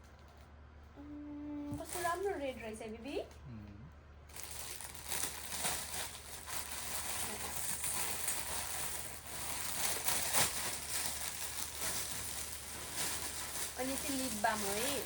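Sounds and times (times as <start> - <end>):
packaging and clothing rustling: 1.8 - 2.3, 4.3 - 15.0
sharp crackle: 4.3 - 15.0.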